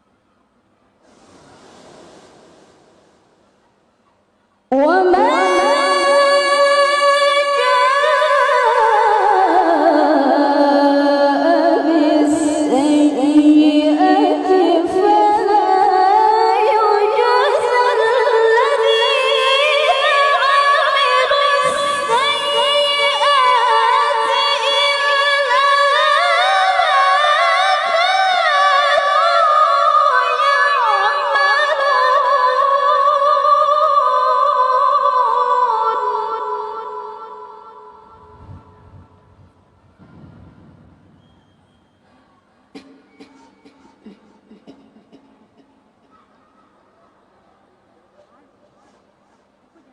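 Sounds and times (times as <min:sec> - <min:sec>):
woman reciting melodically: 0:04.7 - 0:38.4.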